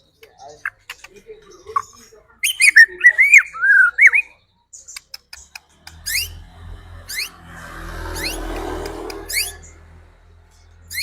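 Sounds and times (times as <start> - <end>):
bird singing whistled phrases: 1.7 - 4.4.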